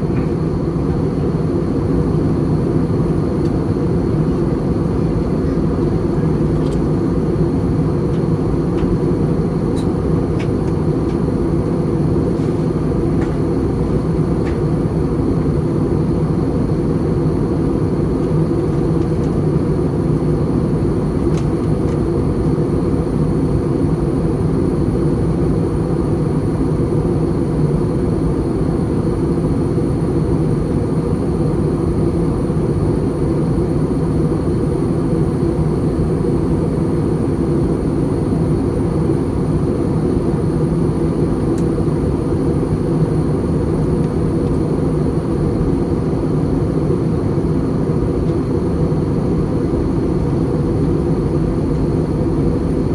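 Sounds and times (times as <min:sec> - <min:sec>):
aircraft cabin engine rush: 0:00.0 - 0:52.9
faint high whine: 0:16.4 - 0:47.8.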